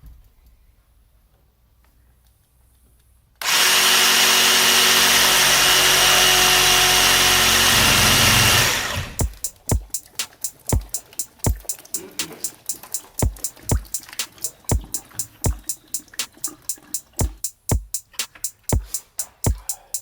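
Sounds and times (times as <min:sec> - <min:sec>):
power saw cutting plastic pipe: 0:03.4 - 0:09.2
background music with sharp beats: 0:09.2 - 0:20.0.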